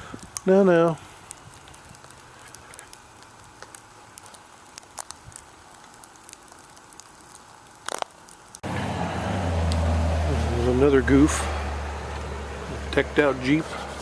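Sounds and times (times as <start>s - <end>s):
soft steady hiss: 0.0s - 8.6s
freezing rain ticking on ice: 0.0s - 8.7s, 9.6s - 10.0s.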